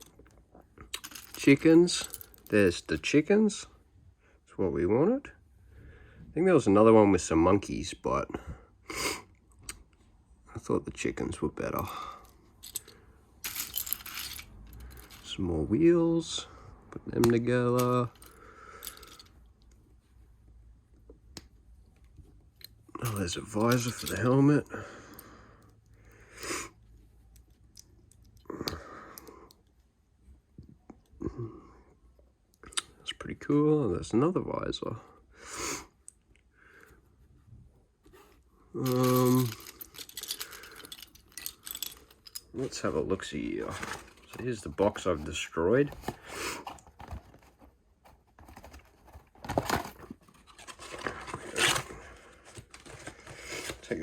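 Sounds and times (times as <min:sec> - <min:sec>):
cardboard tearing: 0:48.3 - 0:54.0.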